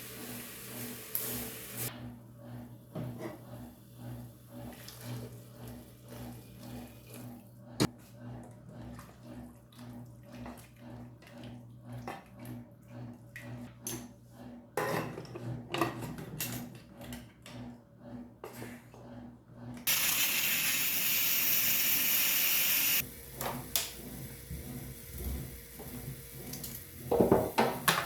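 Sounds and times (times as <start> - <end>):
tap running: 22.5 - 28.0.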